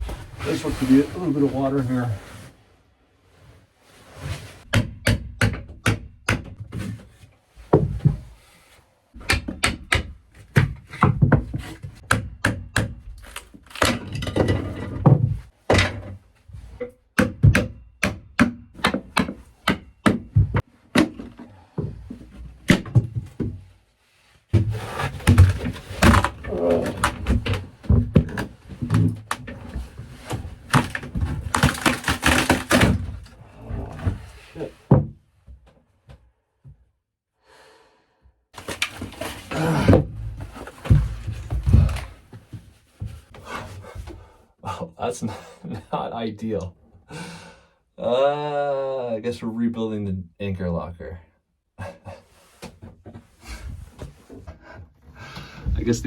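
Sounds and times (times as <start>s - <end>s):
demolition knocks and thuds: 24.5s - 34.2s, 38.6s - 43.2s.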